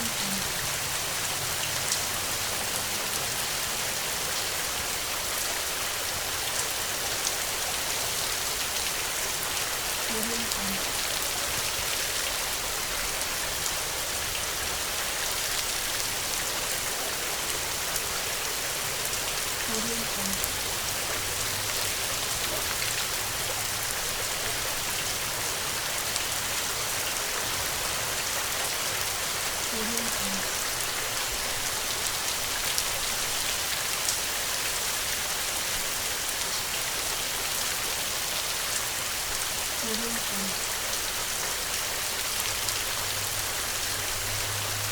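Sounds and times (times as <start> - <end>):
heavy rain hissing: 0.0 - 44.9.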